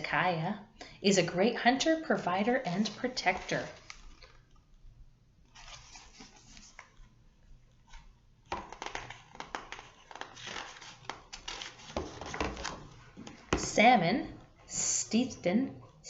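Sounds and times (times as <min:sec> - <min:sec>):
book pages rustling: 0:02.8 - 0:04.8, 0:05.4 - 0:13.6.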